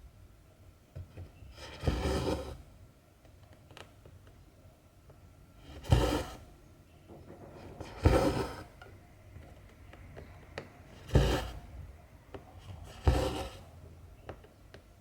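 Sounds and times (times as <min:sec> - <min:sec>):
thread rasping through fabric: 0:05.8 - 0:06.4, 0:11.0 - 0:11.6.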